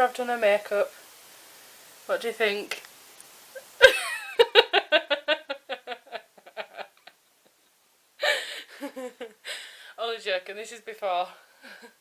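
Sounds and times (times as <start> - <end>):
woman laughing: 3.5 - 9.6.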